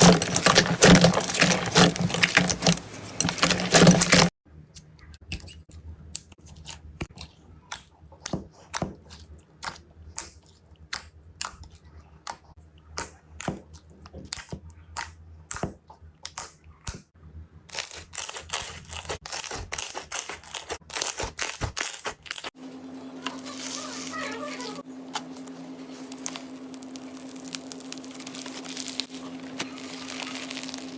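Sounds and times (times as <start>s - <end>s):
slime crackling and popping: 0.0s - 4.3s, 17.7s - 22.6s, 26.0s - 30.9s.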